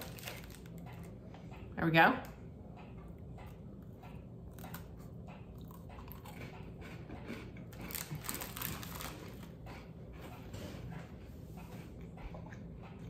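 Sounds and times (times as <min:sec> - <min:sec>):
crunching cookie: 0:00.0 - 0:01.2, 0:04.5 - 0:09.6.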